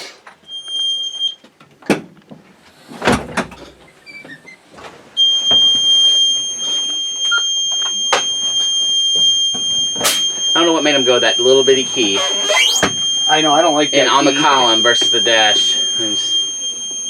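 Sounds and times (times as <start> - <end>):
high-pitched warning buzzer: 9.5 - 17.0
short high beep: 10.0 - 15.4.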